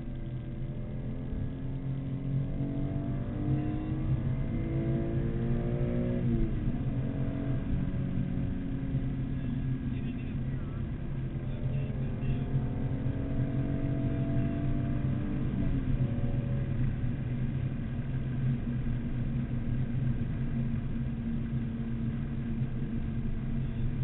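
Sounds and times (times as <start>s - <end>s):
car engine running at speed: 0.0s - 24.0s
road noise: 0.0s - 24.0s.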